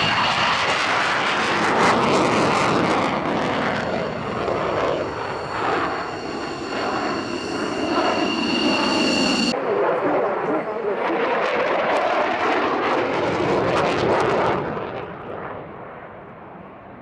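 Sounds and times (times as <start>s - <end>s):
high jet whine: 0.0s - 9.6s
jet engine roar: 0.0s - 16.6s.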